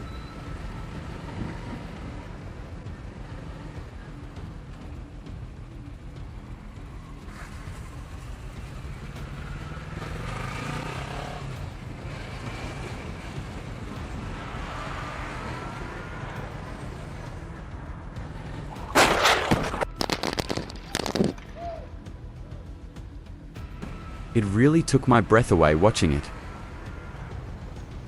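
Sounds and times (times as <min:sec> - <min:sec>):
vehicle rumbling on road: 0:00.0 - 0:28.0
crash impact hits: 0:18.9 - 0:21.4.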